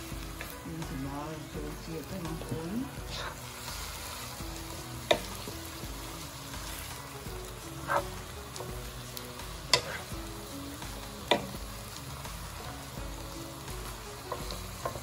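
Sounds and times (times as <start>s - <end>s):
greens sizzling in a pan: 0.0s - 15.0s.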